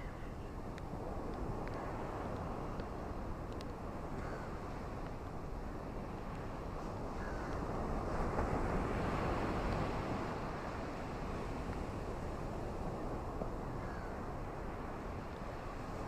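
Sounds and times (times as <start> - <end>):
ocean surf: 0.0 - 16.0.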